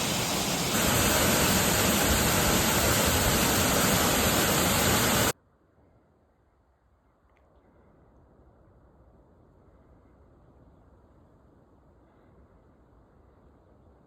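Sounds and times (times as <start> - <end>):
waterfall rushing: 0.0 - 5.3.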